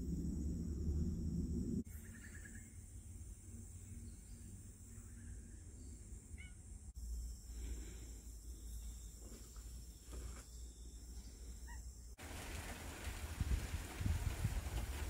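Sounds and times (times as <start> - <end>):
steady low rumble: 0.0 - 1.8
distant bird chirps: 1.9 - 6.8.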